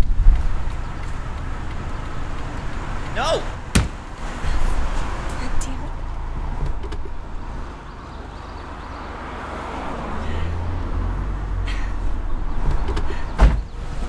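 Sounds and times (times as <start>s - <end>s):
sharp thump: 3.7s - 4.0s.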